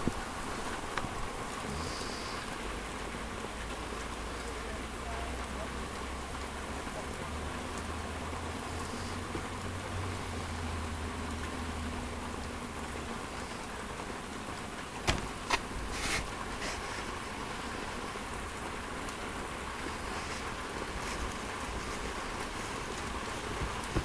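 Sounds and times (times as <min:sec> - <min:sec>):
heavy rain pouring: 0:00.0 - 0:24.0
brief rustle: 0:15.1 - 0:17.2.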